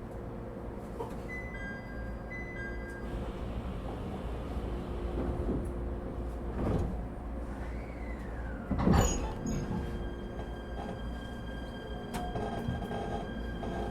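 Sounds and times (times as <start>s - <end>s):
train car rumble: 2.6s - 13.9s.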